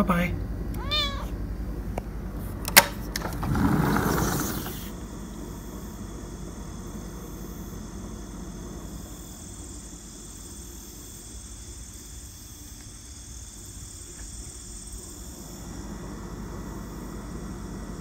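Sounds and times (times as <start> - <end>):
low background rumble: 0.0 - 12.3
insects chirring: 0.0 - 18.0.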